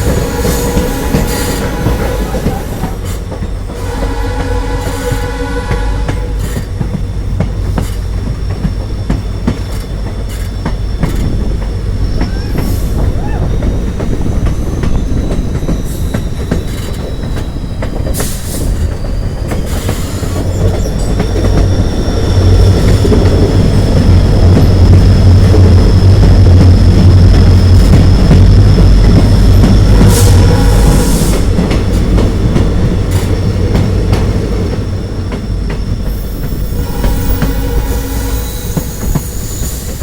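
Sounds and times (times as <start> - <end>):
high wheel squeal: 0.0 - 4.0, 9.6 - 23.1, 34.9 - 40.0
train rumbling along track: 0.0 - 40.0
wheels clicking over rail joints: 5.2 - 40.0.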